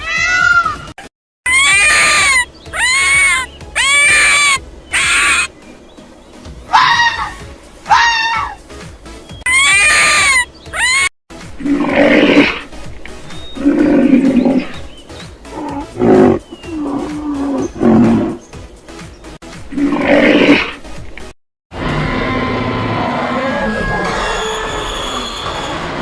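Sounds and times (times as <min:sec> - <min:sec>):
high-pitched animal call: 0:01.5 - 0:05.5, 0:09.5 - 0:11.1, 0:22.3 - 0:25.8
lion roaring: 0:11.6 - 0:12.7, 0:13.6 - 0:14.8, 0:15.5 - 0:18.4, 0:19.7 - 0:20.8.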